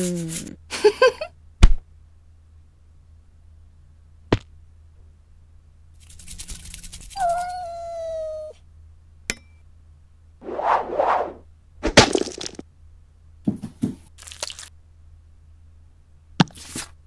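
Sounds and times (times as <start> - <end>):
cat meowing: 7.2 - 8.6.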